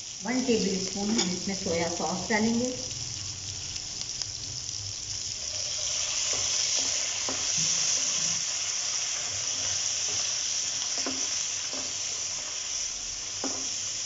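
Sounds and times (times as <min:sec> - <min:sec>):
vegetables sizzling in a wok: 0:00.0 - 0:14.0
spatula scraping and tapping pan: 0:06.2 - 0:08.4, 0:09.2 - 0:12.0, 0:13.4 - 0:13.8.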